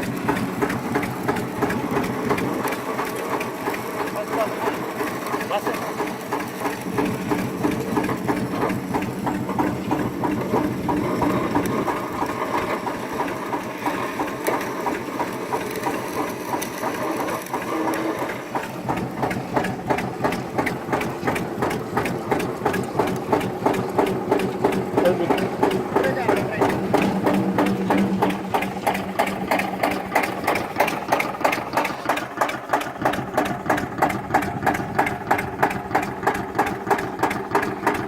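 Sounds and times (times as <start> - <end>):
diesel tractor engine running: 0.0 - 38.0
fast regular clatter: 0.0 - 38.0.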